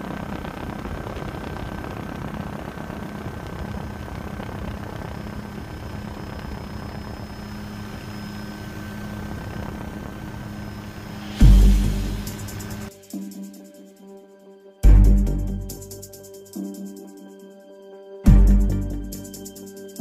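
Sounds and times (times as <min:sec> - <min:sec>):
rushing noise: 0:00.0 - 0:13.5
engine hum: 0:04.4 - 0:12.9.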